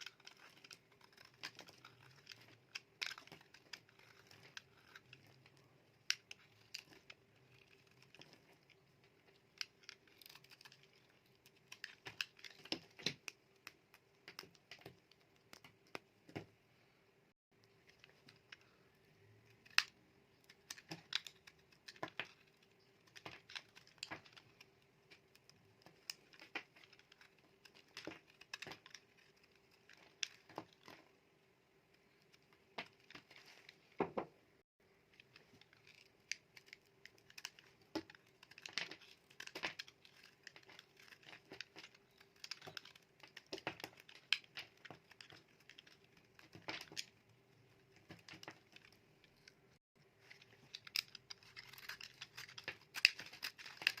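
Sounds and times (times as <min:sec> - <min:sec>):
knife cutting dry soap: 0:00.0 - 0:08.8.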